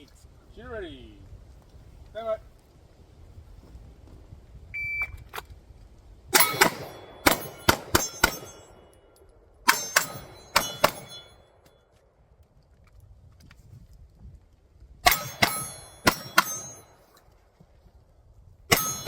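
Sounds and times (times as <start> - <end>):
shot timer beep: 4.8 - 5.2
steel target clanging: 6.3 - 11.6, 15.0 - 17.2, 18.7 - 19.0
pistol shots: 6.4 - 9.0, 9.7 - 11.4, 15.0 - 17.0, 18.7 - 19.0.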